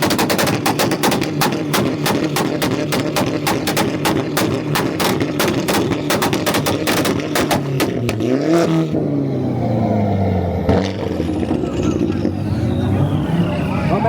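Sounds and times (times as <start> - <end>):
exhaust bangs and pops: 0.0 - 9.0
car engine revving: 0.0 - 14.0.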